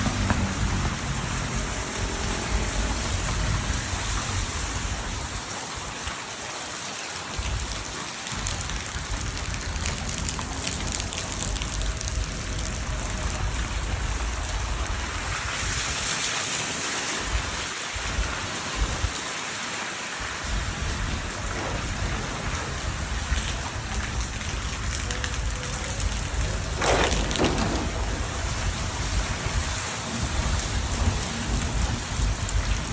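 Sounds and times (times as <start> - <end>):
rain hissing: 0.0 - 32.9
low rumble: 20.6 - 32.9.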